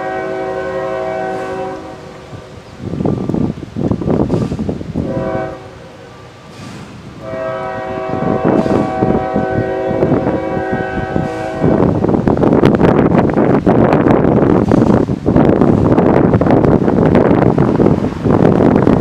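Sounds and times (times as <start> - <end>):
locomotive air horn: 0.0 - 2.5, 5.0 - 6.0, 7.2 - 12.2
loud even rushing noise: 11.2 - 19.0.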